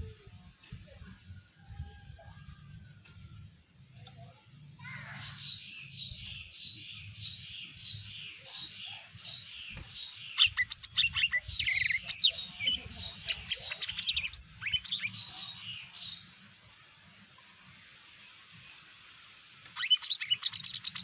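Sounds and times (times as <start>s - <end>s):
bird chirping and whistling: 19.8s - 21.0s.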